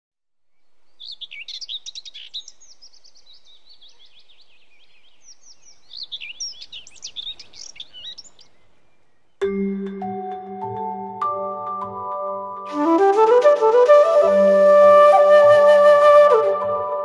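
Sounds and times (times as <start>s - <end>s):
small birds chirping: 0.4s - 9.5s.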